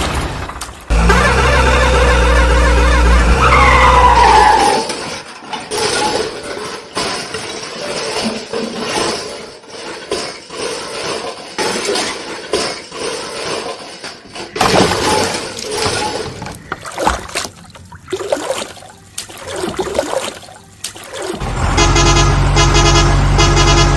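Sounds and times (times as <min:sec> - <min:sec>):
cartoon engine hum: 0:00.9 - 0:04.1.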